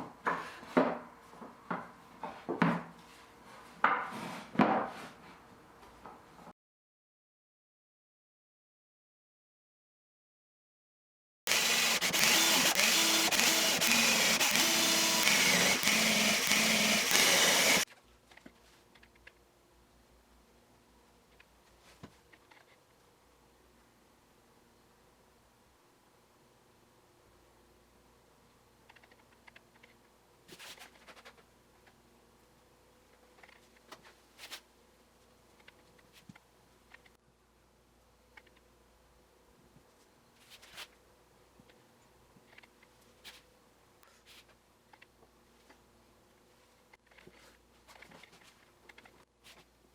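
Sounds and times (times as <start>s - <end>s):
electric power tool running: 11.5s - 17.8s.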